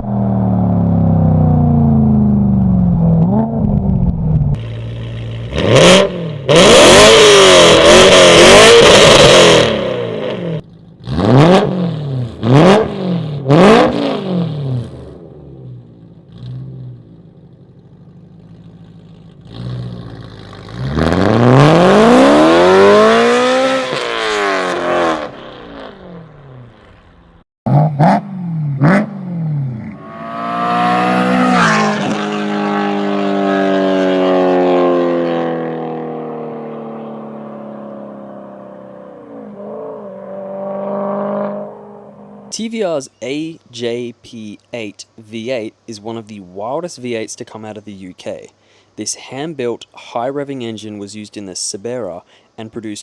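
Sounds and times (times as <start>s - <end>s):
car engine revving hard: 4.6s - 15.2s, 19.4s - 26.3s, 27.7s - 42.5s.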